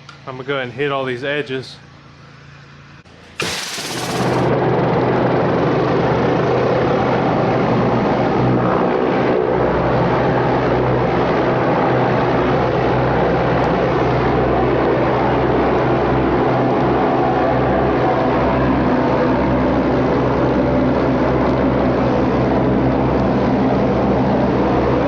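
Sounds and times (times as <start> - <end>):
pressure washer engine hum: 3.2 - 4.5
high-pressure water spraying: 3.4 - 4.5.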